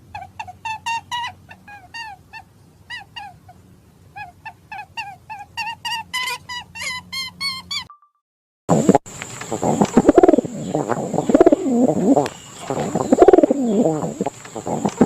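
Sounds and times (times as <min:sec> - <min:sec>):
bird giving rapid short calls: 0:08.8 - 0:15.0.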